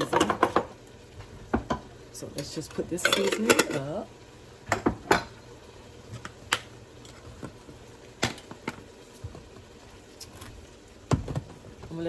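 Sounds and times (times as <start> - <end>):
containers clicking and knocking: 3.0 - 3.8.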